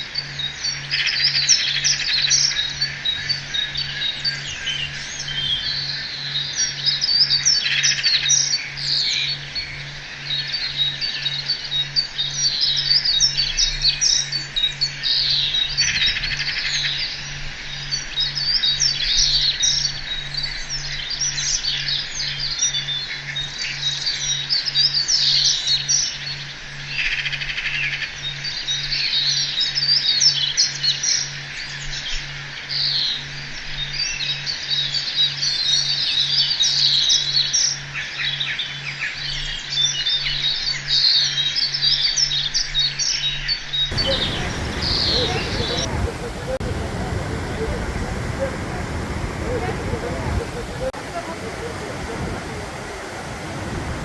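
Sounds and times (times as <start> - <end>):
small birds chirping: 43.9 - 54.0.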